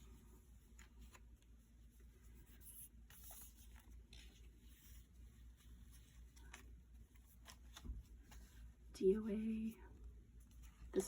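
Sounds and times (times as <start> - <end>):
low room hum: 0.0 - 11.0
paper pages rustling: 0.6 - 8.8.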